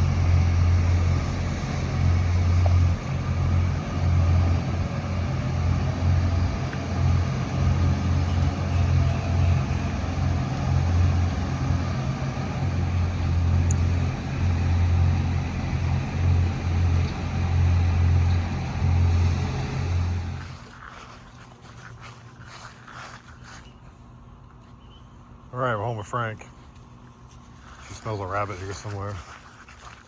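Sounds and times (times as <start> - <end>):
boat motors running: 0.0 - 20.8.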